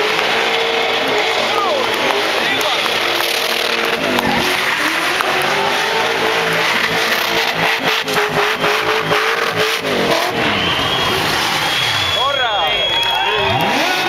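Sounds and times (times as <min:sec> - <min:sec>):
car engine revving hard: 0:00.0 - 0:12.3, 0:12.9 - 0:14.0.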